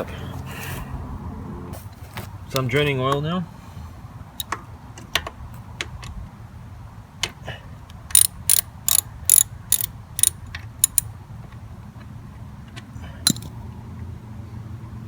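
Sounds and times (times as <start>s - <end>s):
ratchet wrench clicking: 8.1s - 11.1s.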